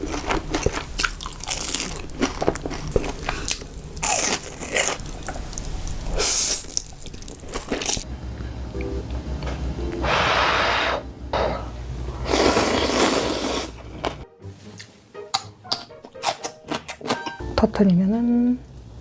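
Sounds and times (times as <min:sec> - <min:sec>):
person chewing crunchy food: 0:00.0 - 0:08.0, 0:12.2 - 0:17.4.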